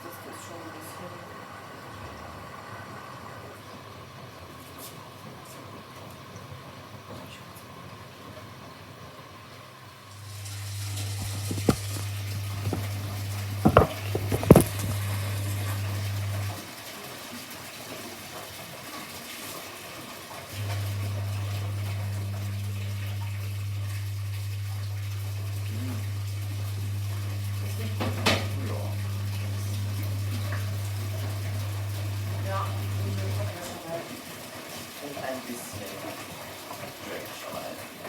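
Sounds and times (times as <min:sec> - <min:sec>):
washing machine filling with water: 0:00.0 - 0:38.0
sharp knocks: 0:13.6 - 0:15.0.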